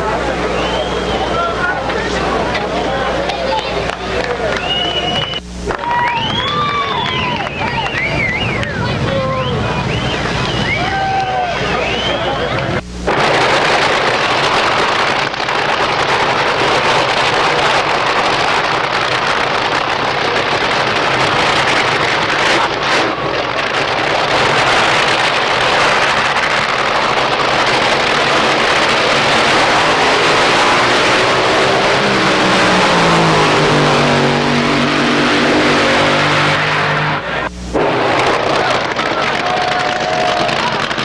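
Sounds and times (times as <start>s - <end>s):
vehicle engine noise: 0.0s - 41.0s
engine revving up: 11.6s - 39.6s.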